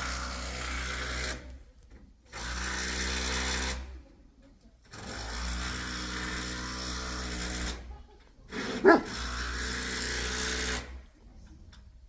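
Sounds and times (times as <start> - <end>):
dog barking: 8.8 - 9.2.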